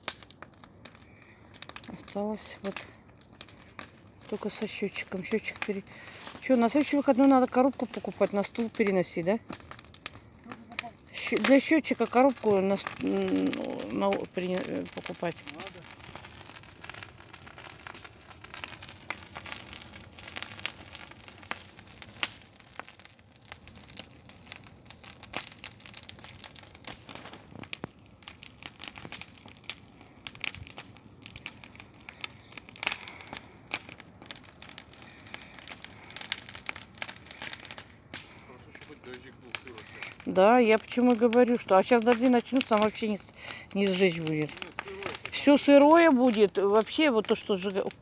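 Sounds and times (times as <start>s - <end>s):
bonfire crackling and popping: 0.0s - 48.0s.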